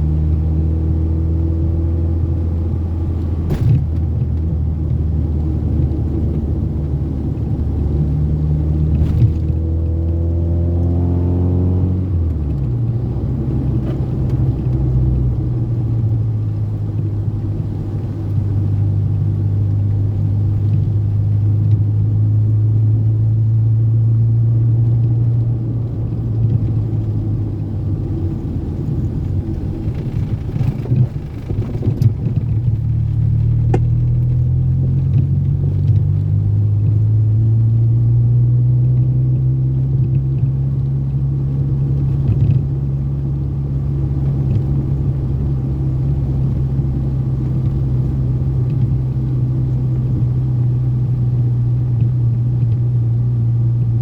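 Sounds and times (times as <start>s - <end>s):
car engine pulling hard: 0.0s - 54.0s
road noise rumble: 0.0s - 54.0s.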